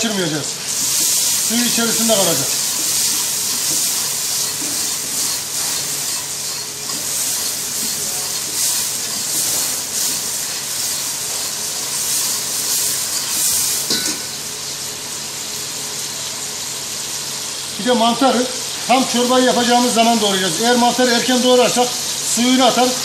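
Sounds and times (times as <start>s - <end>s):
whisk stirring: 0.0s - 14.1s
mushrooms sizzling in a pot: 0.0s - 23.0s.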